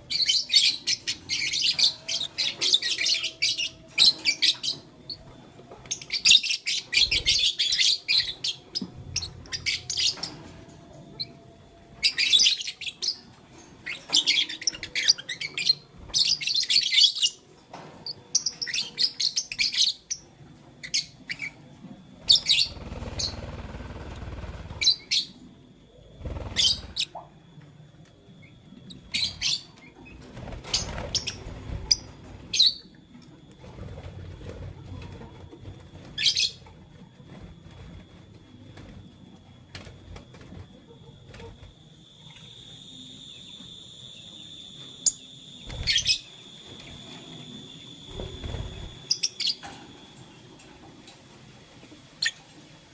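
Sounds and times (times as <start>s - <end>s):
lovebirds chirping: 22.2s - 25.4s, 26.2s - 27.2s.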